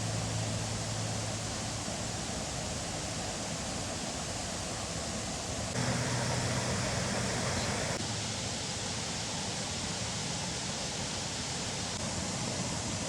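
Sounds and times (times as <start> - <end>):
faint low hum: 0.0 - 8.0
waterfall rushing: 0.0 - 8.0.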